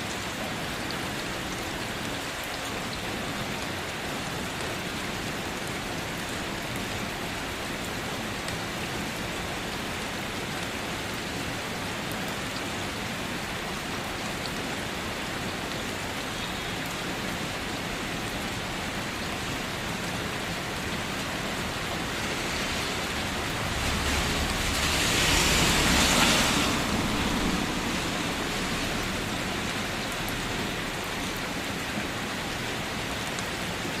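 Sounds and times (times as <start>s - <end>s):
rain falling: 0.0s - 34.0s
low rumble: 23.0s - 29.5s.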